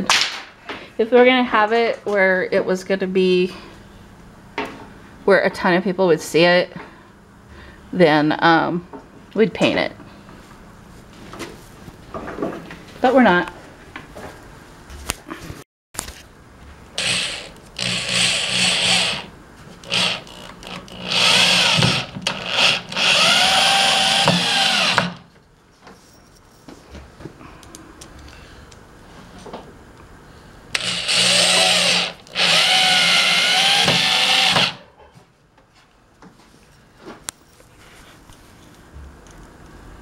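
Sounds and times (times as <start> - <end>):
power drill driving screws into wood: 17.0 - 25.2, 30.7 - 34.8.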